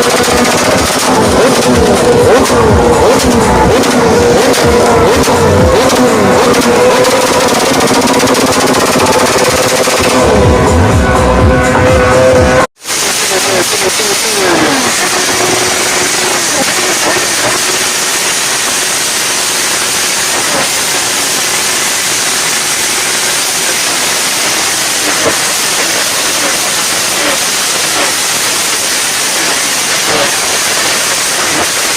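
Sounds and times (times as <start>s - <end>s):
loud rushing hiss: 0.0s - 10.8s, 12.8s - 31.9s.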